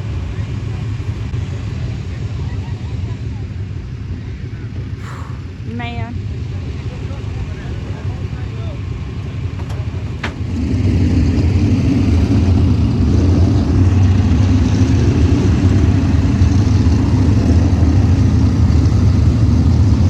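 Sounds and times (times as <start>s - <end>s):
race car engine running: 6.2s - 20.0s.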